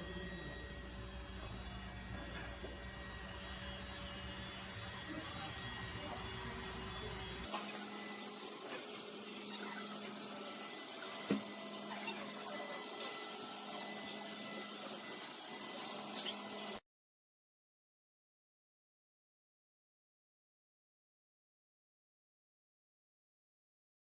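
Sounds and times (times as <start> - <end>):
robot vacuum whirring: 0.0 - 16.8.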